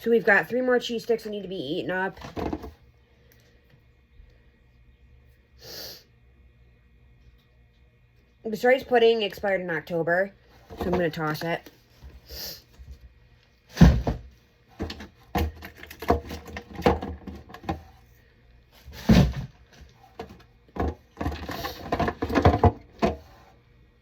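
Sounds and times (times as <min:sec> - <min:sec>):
plastic containers knocking: 0:20.2 - 0:23.3.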